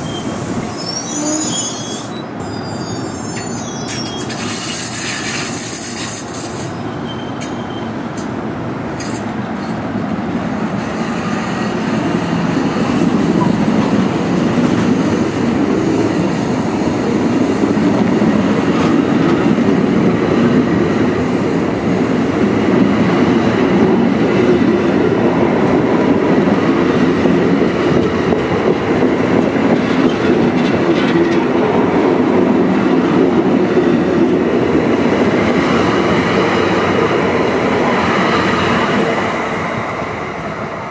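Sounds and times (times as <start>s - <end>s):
high wheel squeal: 0.0s - 8.0s
train wheels rumbling on rails: 0.0s - 40.9s.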